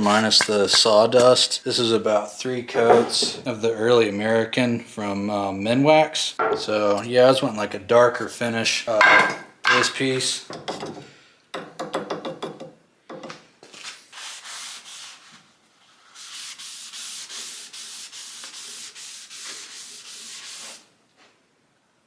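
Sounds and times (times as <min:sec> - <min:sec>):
rubbing strokes on wood: 0:16.1 - 0:20.9.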